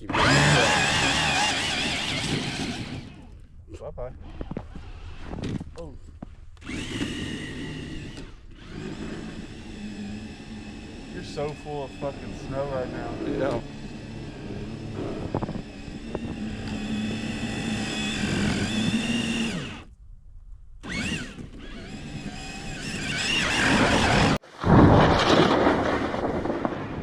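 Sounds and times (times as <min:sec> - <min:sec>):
electric motor whining: 0:00.0 - 0:03.4, 0:06.6 - 0:19.9, 0:20.8 - 0:24.4.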